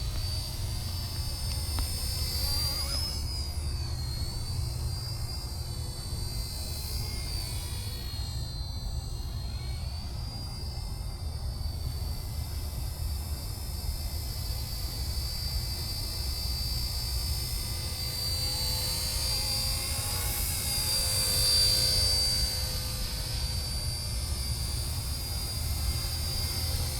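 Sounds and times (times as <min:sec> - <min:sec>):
model helicopter flying: 0:00.0 - 0:26.9.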